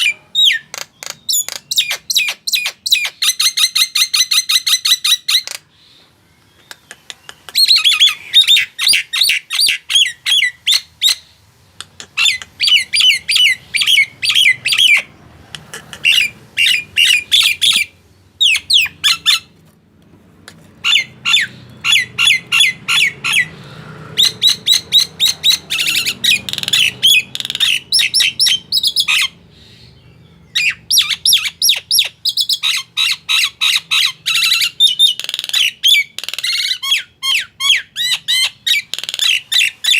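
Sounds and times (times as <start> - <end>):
myna squawking: 11.8 - 19.5, 20.8 - 29.4.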